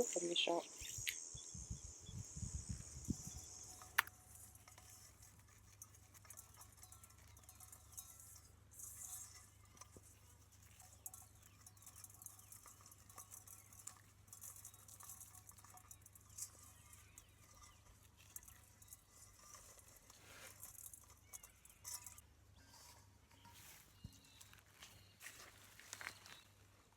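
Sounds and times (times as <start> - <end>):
distant bird chirps: 0.0 - 4.1, 20.8 - 26.6
soft high hiss: 0.0 - 5.6
small clicks: 0.1 - 1.4, 3.3 - 4.8.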